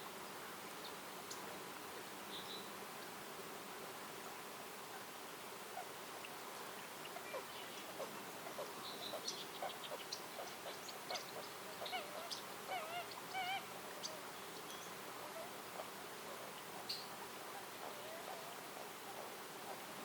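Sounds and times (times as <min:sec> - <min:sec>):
steady background hiss: 0:00.0 - 0:20.0
birds chirping: 0:06.2 - 0:20.0.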